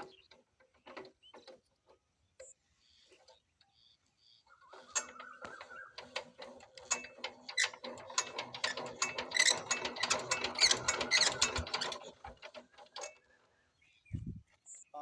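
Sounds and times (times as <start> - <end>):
diesel engine cranking clatter: 4.7 - 13.4.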